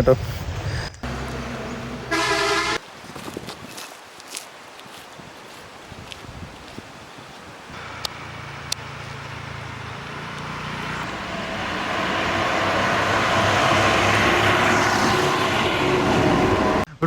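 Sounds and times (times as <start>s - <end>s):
vehicle engine approaching: 1.0s - 2.8s, 7.8s - 16.9s.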